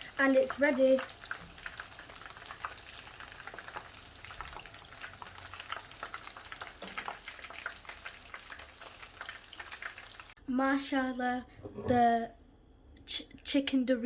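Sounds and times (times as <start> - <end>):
chicken frying in hot oil: 0.0 - 10.4.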